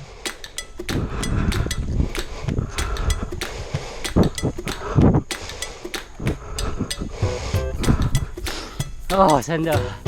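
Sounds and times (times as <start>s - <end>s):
bike clicking and rattling: 0.0s - 7.1s
wind rumble on microphone: 0.9s - 5.3s.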